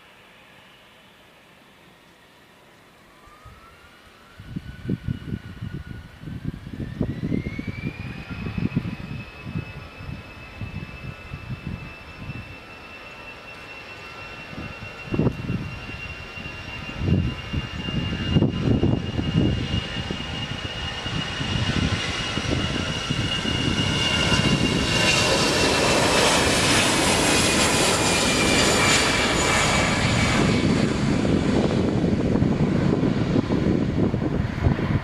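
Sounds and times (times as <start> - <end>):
jet engines at take-off thrust: 0.0 - 35.0.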